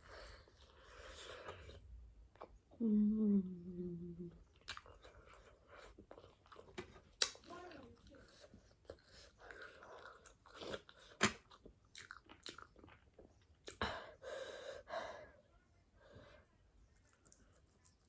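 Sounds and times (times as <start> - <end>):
person chewing crunchy food: 4.5 - 13.8, 17.0 - 18.0.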